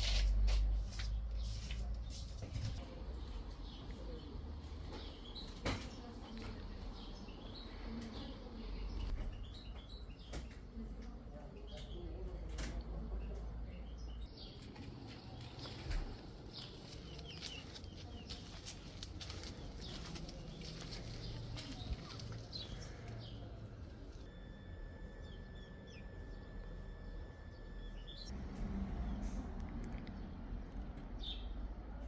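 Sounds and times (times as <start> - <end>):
small birds chirping: 0.3 - 24.3, 25.1 - 28.4, 29.0 - 32.0
low outdoor rumble: 10.7 - 32.0.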